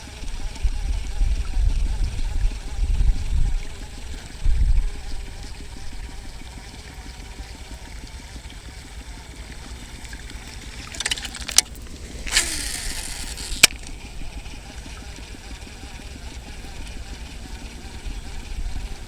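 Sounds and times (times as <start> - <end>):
wind on microphone: 0.2 - 6.3
sharp clicks: 9.6 - 14.0.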